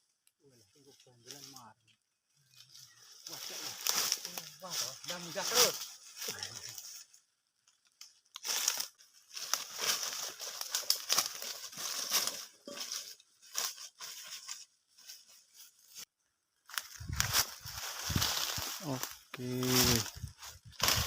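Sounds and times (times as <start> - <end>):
dry material rustling and crinkling: 2.6 - 7.1, 8.4 - 16.1.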